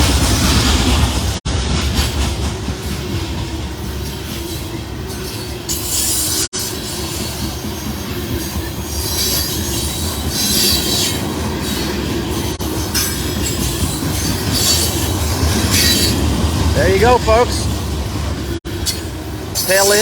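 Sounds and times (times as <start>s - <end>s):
train wheels rumbling on rail: 0.0s - 20.0s
high wheel squeal: 4.3s - 16.2s.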